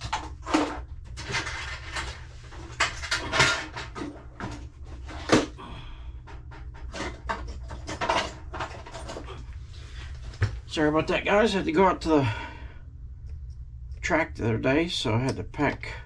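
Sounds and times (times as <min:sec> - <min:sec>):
hand tools clattering in box: 0:00.0 - 0:05.5, 0:06.8 - 0:09.4
steady low hum: 0:00.0 - 0:16.0.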